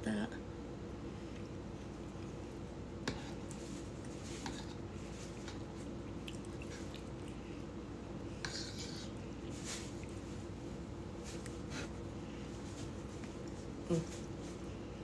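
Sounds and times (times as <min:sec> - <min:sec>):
person chewing: 0:06.0 - 0:07.6
fork scraping ceramic bowl: 0:08.4 - 0:09.2.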